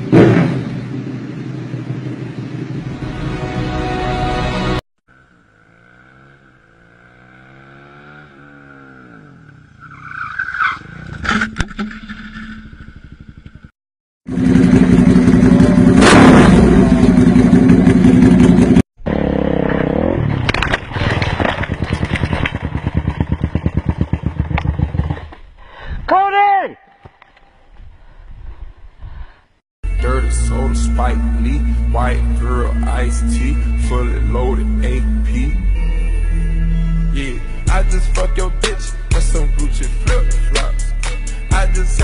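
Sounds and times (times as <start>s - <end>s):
motorcycle engines revving: 5.1s - 11.2s, 14.3s - 25.4s.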